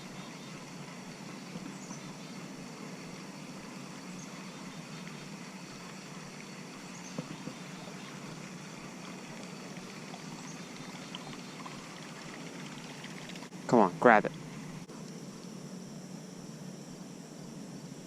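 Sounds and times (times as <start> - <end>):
water trickling around kayak: 0.0 - 13.5.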